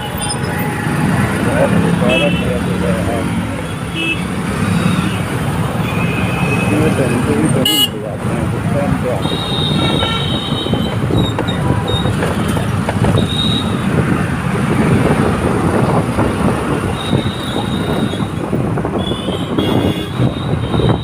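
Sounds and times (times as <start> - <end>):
road noise rumble: 0.0 - 21.0
wind on microphone: 9.4 - 21.0.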